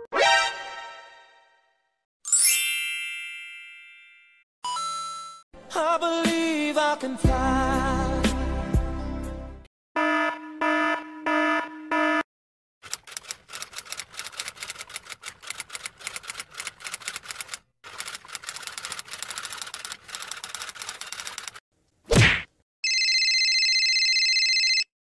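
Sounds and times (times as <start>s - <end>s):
rapid typewriter clicks: 12.8s - 21.6s.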